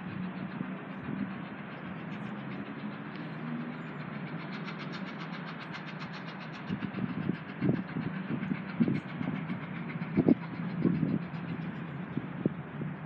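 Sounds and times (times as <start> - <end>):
train engine hum: 0.0 - 13.0
low thuds and buffeting: 5.9 - 13.0.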